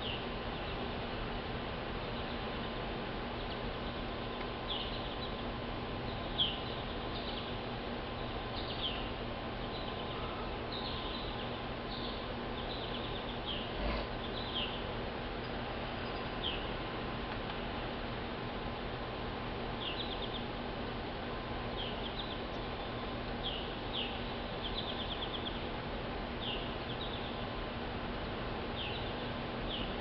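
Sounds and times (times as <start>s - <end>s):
birds chirping: 0.0s - 1.0s, 2.0s - 16.9s, 19.7s - 20.7s, 21.6s - 30.0s
steady low hum: 0.0s - 30.0s.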